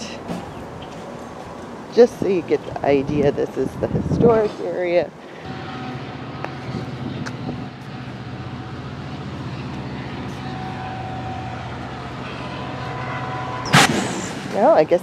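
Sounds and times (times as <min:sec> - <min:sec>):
vehicle engine idling: 0:05.4 - 0:13.6.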